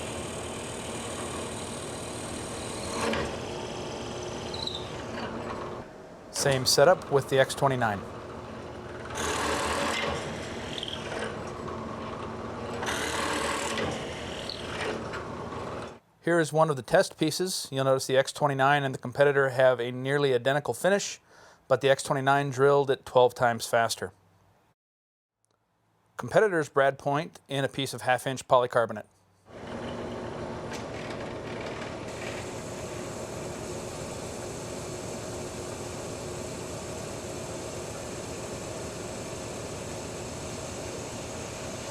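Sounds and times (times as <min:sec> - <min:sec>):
drill bit boring into wood: 0:00.0 - 0:05.8, 0:08.8 - 0:16.0, 0:29.5 - 0:41.9
drill press humming: 0:00.0 - 0:16.0, 0:29.5 - 0:41.9.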